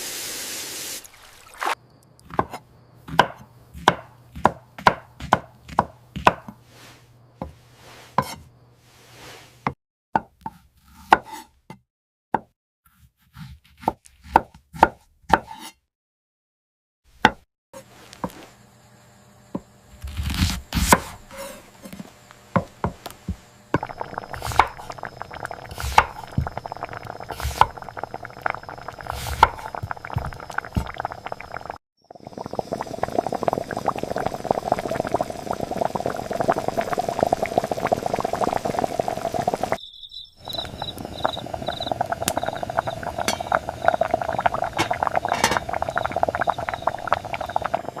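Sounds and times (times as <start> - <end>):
liquid pouring or cooking: 0.0 - 2.5, 23.8 - 39.8, 40.4 - 48.0.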